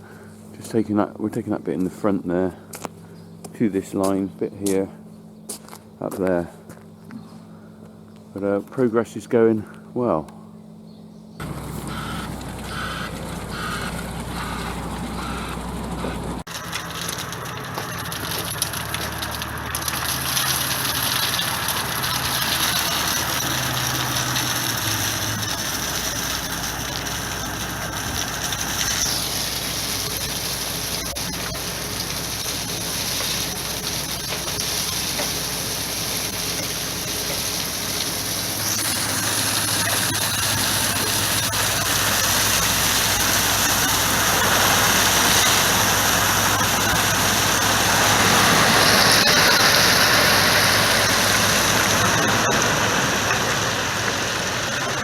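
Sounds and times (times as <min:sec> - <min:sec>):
large engine running: 0:11.4 - 0:55.0.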